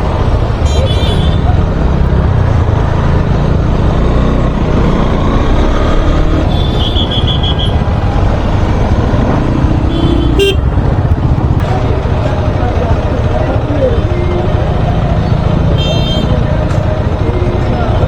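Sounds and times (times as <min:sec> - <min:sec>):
motorcycle engine rumble: 0:00.0 - 0:18.0.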